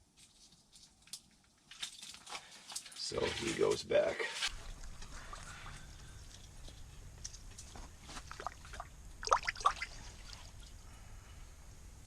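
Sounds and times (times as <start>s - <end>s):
water splashing and trickling: 3.0s - 3.8s, 4.4s - 6.8s, 8.2s - 10.8s
low steady rumble: 4.5s - 12.0s.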